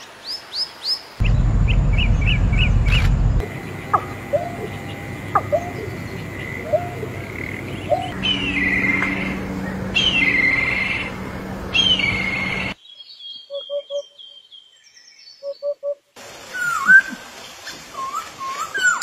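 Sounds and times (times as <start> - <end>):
birds soft chirps and twittering: 0.0 - 16.0
birds whistled calls: 3.9 - 16.0.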